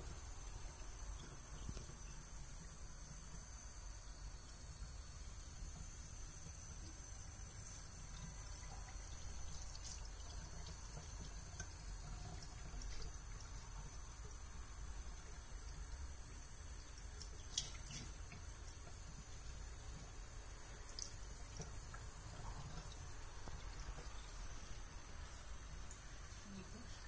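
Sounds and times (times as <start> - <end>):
tap water trickling: 0.0 - 26.3.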